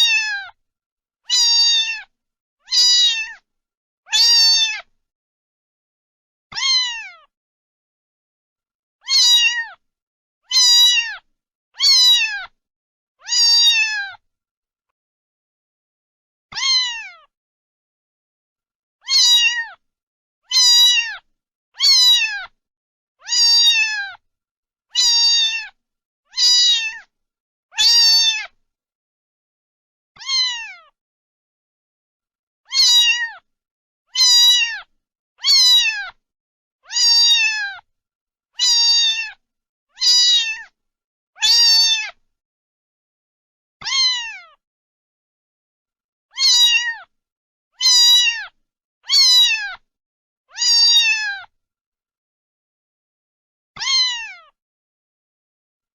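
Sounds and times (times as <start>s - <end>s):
cat meowing: 0.0s - 0.6s, 1.3s - 2.1s, 2.7s - 3.4s, 4.1s - 4.9s, 6.5s - 7.3s, 9.0s - 9.8s, 10.5s - 12.6s, 13.2s - 14.2s, 16.5s - 17.3s, 19.0s - 19.8s, 20.5s - 22.6s, 23.2s - 24.2s, 25.0s - 27.1s, 27.7s - 28.6s, 30.2s - 31.0s, 32.7s - 33.5s, 34.1s - 36.2s, 36.8s - 37.9s, 38.6s - 39.4s, 40.0s - 40.8s, 41.4s - 42.2s, 43.8s - 44.6s, 46.3s - 47.1s, 47.8s - 49.8s, 50.5s - 51.5s, 53.8s - 54.6s.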